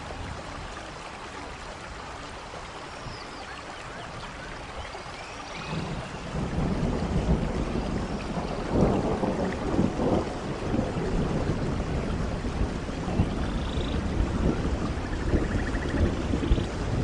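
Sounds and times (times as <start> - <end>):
steady rain: 0.0 - 17.0
thunder rumbling: 5.7 - 17.0.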